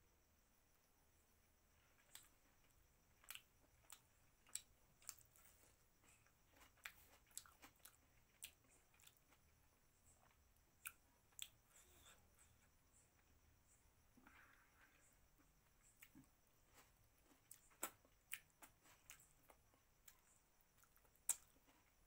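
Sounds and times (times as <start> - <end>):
person chewing with mouth clicks: 3.2 - 9.4, 10.2 - 12.2, 17.5 - 20.2, 20.8 - 21.5.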